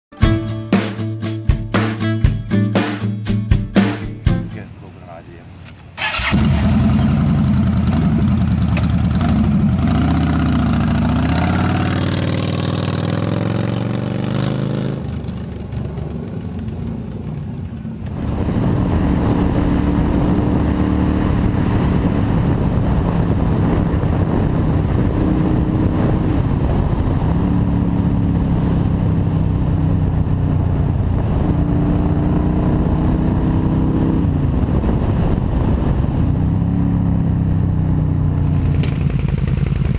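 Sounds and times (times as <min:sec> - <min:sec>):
motorcycle engine revving: 0:05.6 - 0:39.9.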